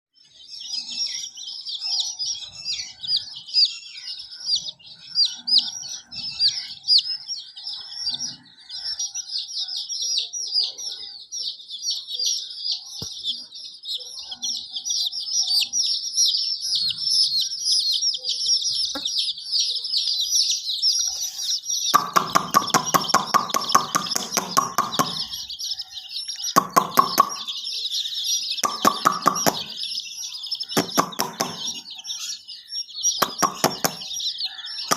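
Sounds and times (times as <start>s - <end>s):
chicks peeping: 0.2s - 34.9s
hen clucking: 18.8s - 19.3s, 21.1s - 32.4s, 33.1s - 34.9s.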